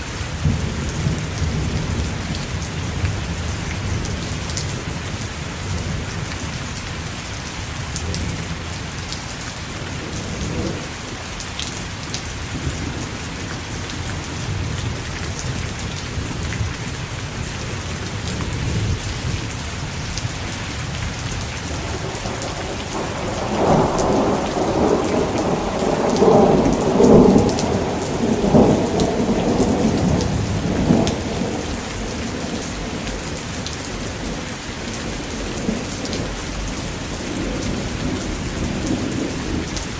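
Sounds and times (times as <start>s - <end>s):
steady rain falling: 0.0s - 39.9s
thunder rumbling: 12.5s - 39.9s.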